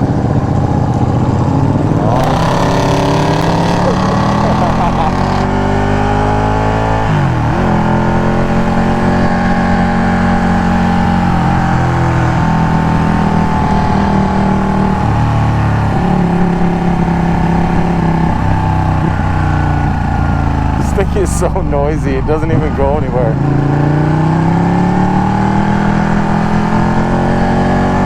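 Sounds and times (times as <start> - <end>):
old car engine running: 0.0 - 5.9
motorcycle engine: 0.0 - 28.0.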